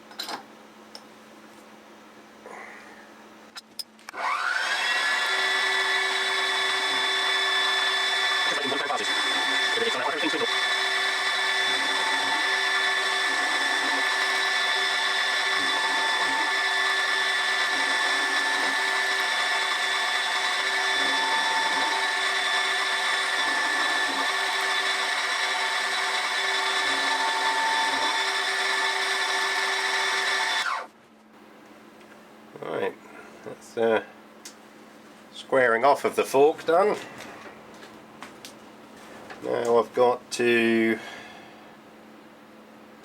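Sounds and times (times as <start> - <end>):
end mill cutting steel: 4.1 - 30.9
milling machine motor whine: 4.1 - 30.9.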